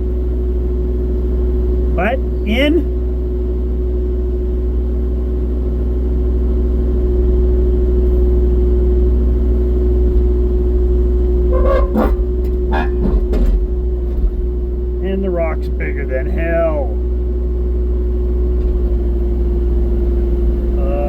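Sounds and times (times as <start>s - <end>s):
diesel engine droning: 0.0s - 21.0s
hydraulic whine: 11.2s - 15.1s.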